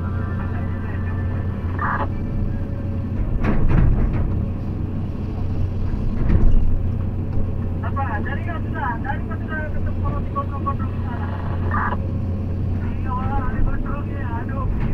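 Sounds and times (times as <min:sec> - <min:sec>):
vehicle engine rumbling: 0:00.0 - 0:14.9
vehicle jolting on bumps: 0:03.0 - 0:04.6.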